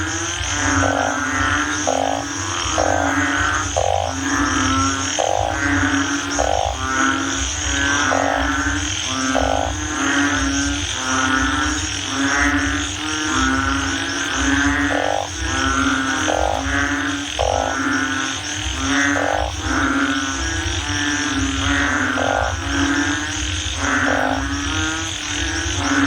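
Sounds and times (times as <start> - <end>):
low droning hum: 0.0 - 12.1
frogs croaking: 0.0 - 26.0.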